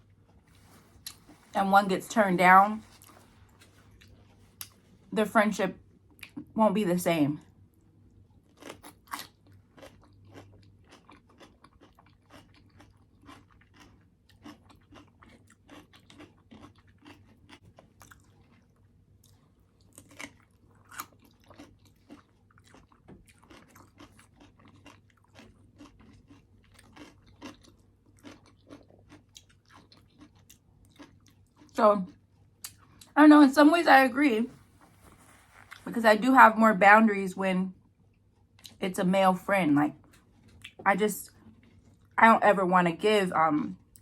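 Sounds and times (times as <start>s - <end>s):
person chewing and crunching food: 0.0s - 1.6s, 2.8s - 5.1s, 7.5s - 33.2s, 34.6s - 35.9s, 39.9s - 42.2s.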